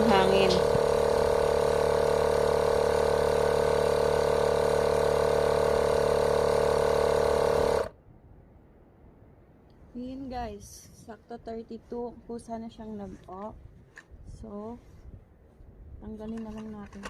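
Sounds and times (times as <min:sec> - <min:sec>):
air compressor running: 0:00.0 - 0:08.0.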